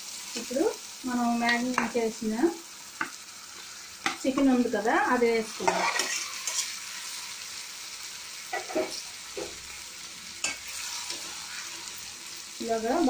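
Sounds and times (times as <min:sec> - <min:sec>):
chicken sizzling in hot oil: 0:00.0 - 0:13.0
spatula scraping and knocking pan: 0:05.6 - 0:06.7, 0:08.5 - 0:09.6.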